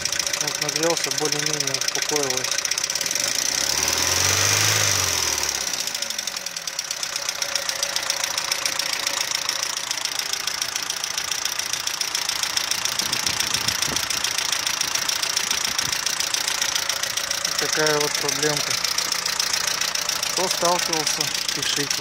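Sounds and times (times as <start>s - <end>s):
engine with metallic knock: 0.0s - 18.2s.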